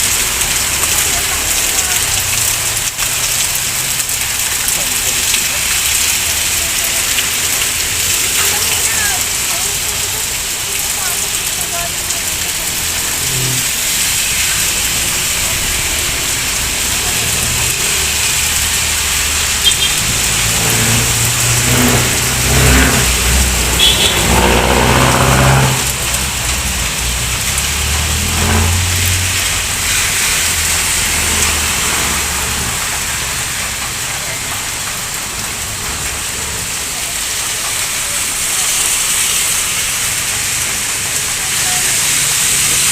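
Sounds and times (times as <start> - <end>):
heavy rain on street: 0.0 - 42.9
vehicles driving past: 0.0 - 42.9.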